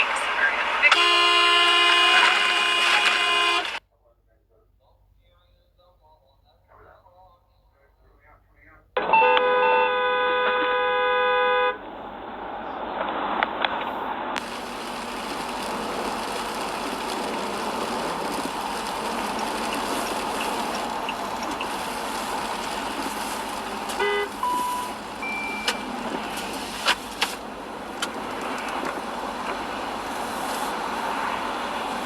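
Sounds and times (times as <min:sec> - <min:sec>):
car horn toot: 0:00.0 - 0:03.8, 0:09.0 - 0:11.8, 0:20.5 - 0:27.5
road traffic noise: 0:00.0 - 0:03.8, 0:09.0 - 0:32.0
brief beeps: 0:24.0 - 0:25.9
sharp clicks: 0:25.6 - 0:29.6.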